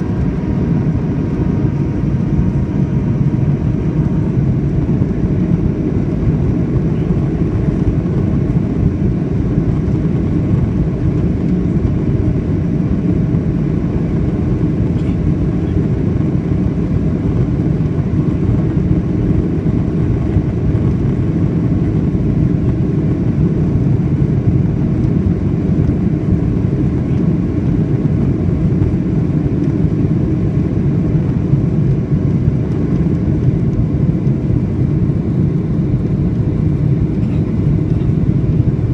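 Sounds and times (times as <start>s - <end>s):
airplane cabin engine roar: 0.0s - 38.9s.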